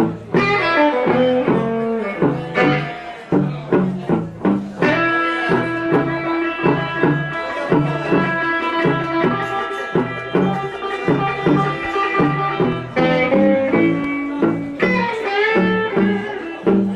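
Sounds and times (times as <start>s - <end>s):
bass guitar: 0.0s - 16.9s
electric guitar lead lines: 0.0s - 16.9s
drum beat: 3.7s - 16.9s.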